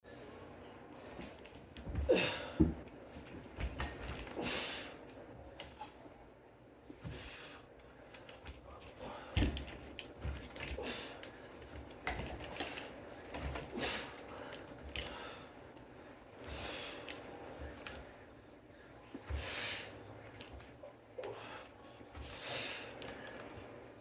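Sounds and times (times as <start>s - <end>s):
person breathing hard: 10.7s - 11.6s.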